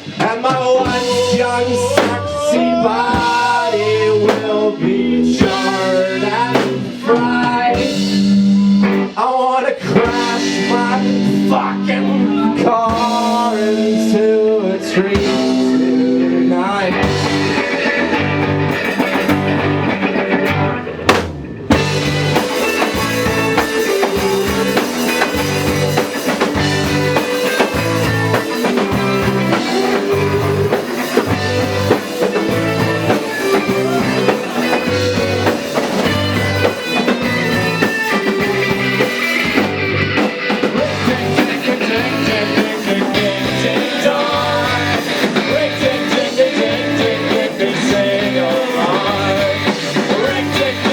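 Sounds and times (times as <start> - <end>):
live rock band playing: 0.0 - 50.9
sharp drum hit: 21.1 - 32.5.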